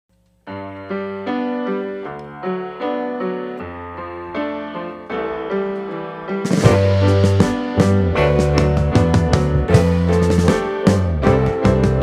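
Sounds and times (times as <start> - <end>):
piano chords: 0.2 - 12.0
drum kit with crash cymbal: 6.4 - 12.0.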